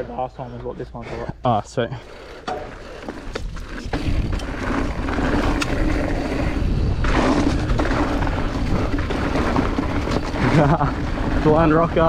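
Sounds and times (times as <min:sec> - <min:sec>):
bike tyre noise on dirt: 0:00.0 - 0:12.0
wind rushing: 0:03.2 - 0:12.0.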